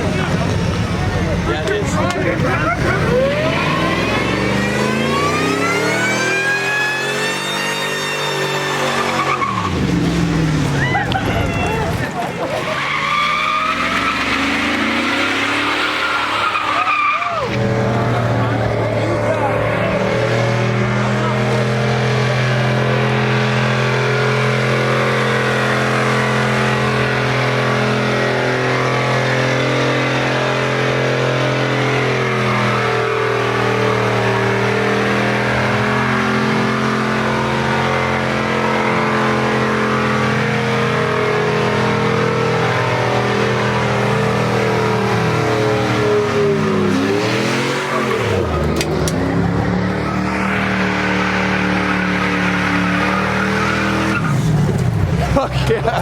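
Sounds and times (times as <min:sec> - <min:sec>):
car engine running: 0:00.0 - 0:56.0
road noise: 0:00.0 - 0:56.0.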